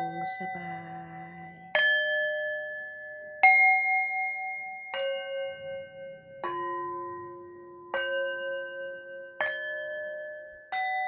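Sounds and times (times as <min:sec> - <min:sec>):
struck bell tones: 0:00.0 - 0:02.2.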